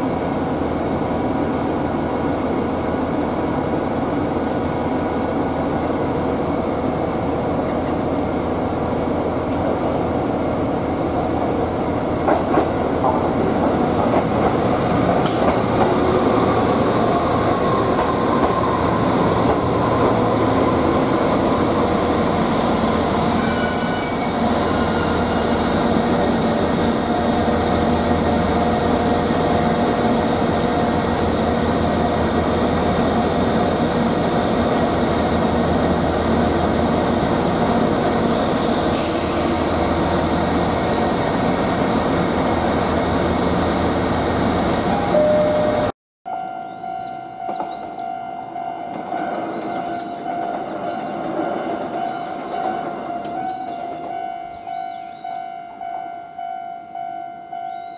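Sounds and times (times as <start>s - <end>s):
train running noise: 0.0s - 45.9s
brake squeals: 23.3s - 27.3s.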